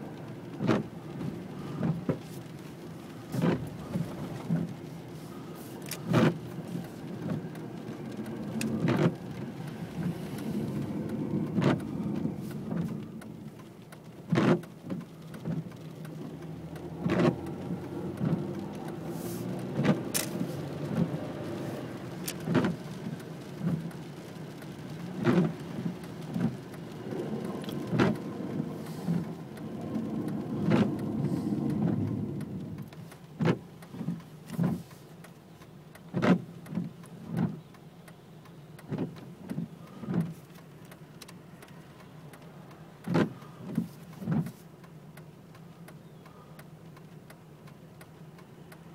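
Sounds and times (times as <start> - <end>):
low steady rumble: 0.0 - 37.4
raindrops hitting a hard surface: 0.0 - 48.9.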